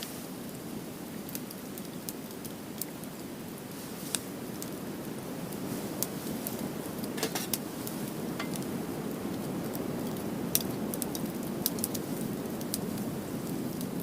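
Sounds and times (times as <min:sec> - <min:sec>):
wood fire crackling: 0:00.0 - 0:14.0
sharp pops of burning wood: 0:07.0 - 0:14.0.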